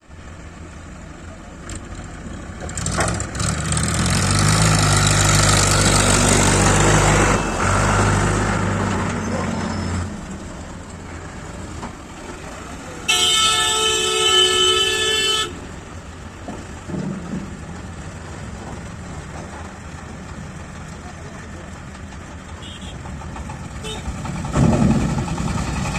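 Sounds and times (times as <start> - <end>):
truck engine running: 0.0 - 25.9
truck horn blast: 5.5 - 8.8, 13.0 - 15.7, 22.6 - 23.1, 23.8 - 24.2.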